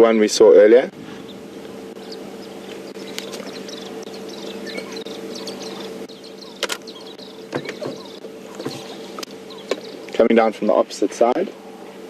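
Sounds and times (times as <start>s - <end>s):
insects: 0.0s - 12.0s
steady low hum: 0.0s - 12.0s
sharp clicks: 6.6s - 7.0s.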